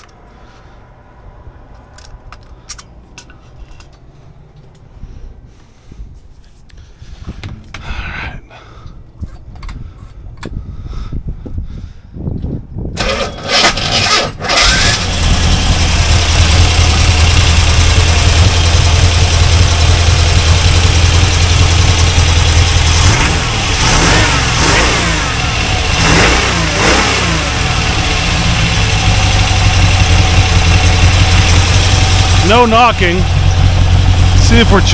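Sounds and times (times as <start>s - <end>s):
engine cranking and starting: 12.9s - 34.9s
engine running and revving: 13.0s - 34.9s.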